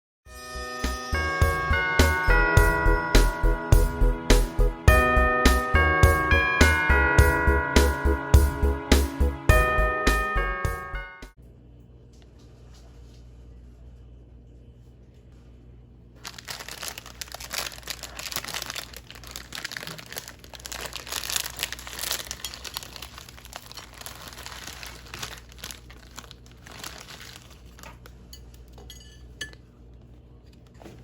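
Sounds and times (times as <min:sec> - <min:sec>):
plastic wrapper crinkling: 0:16.2 - 0:28.3.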